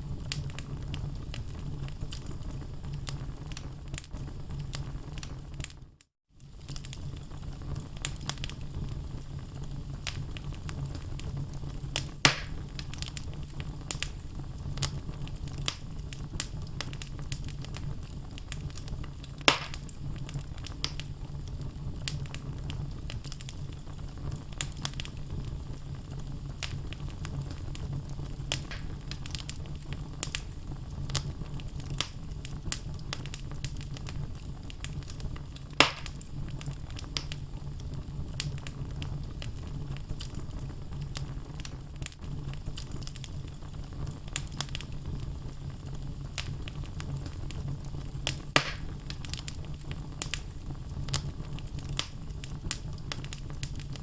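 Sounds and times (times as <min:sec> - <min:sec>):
fire crackling: 0:00.0 - 0:54.0
loud sharp pops: 0:12.2 - 0:12.6, 0:19.5 - 0:19.9, 0:28.5 - 0:29.1, 0:35.8 - 0:36.2, 0:48.6 - 0:49.1.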